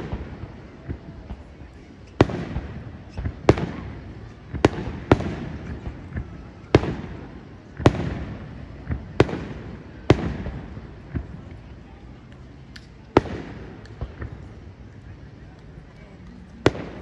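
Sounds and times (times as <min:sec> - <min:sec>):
faint firework pops: 0:00.0 - 0:07.2, 0:07.8 - 0:11.6, 0:12.2 - 0:14.6, 0:15.5 - 0:17.0
firework booms echoing: 0:02.2 - 0:11.4, 0:13.2 - 0:14.4, 0:16.6 - 0:17.0.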